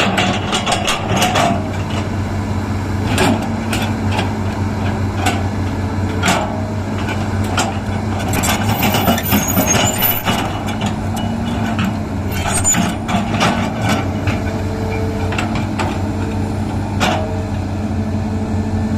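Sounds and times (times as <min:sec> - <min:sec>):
excavator diesel engine running: 0:00.0 - 0:18.9
metallic clanks: 0:06.2 - 0:14.4
brief high squeaks: 0:08.3 - 0:10.6, 0:12.3 - 0:13.0.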